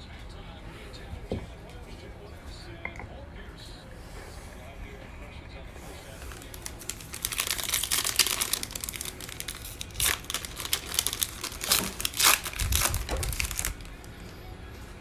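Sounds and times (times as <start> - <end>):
plastic wrapper crinkling and tearing: 6.1 - 14.2.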